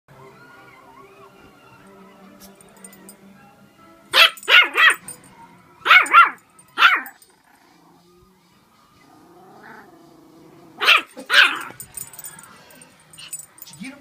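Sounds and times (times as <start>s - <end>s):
dog barking sharply: 4.2s - 5.0s, 5.9s - 7.2s, 10.8s - 11.8s.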